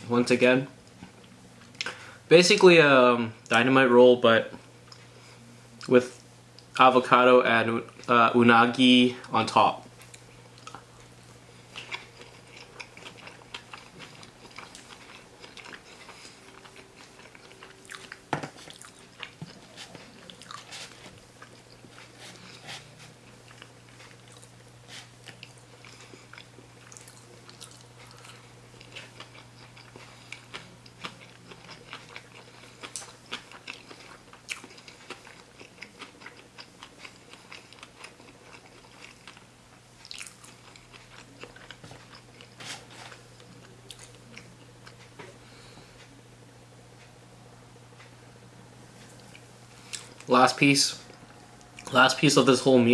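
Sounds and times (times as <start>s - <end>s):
steady low hum: 0.0s - 52.9s
chewing with soft crunches: 9.2s - 46.3s, 48.9s - 52.0s.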